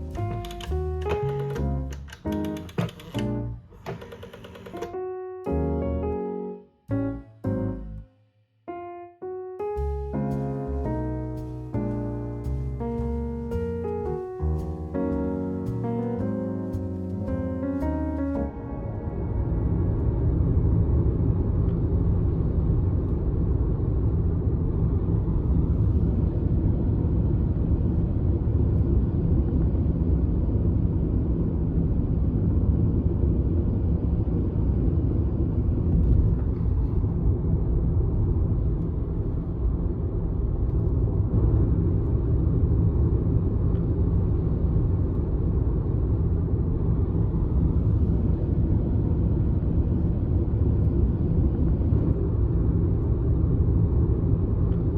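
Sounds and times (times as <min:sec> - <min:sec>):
vehicle rumble from inside: 0:09.8 - 0:54.9.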